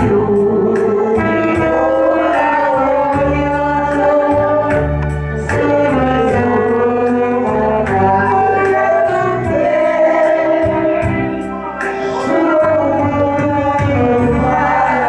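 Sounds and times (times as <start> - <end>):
bass: 0.0 - 15.0
saxophone melody: 11.4 - 14.8.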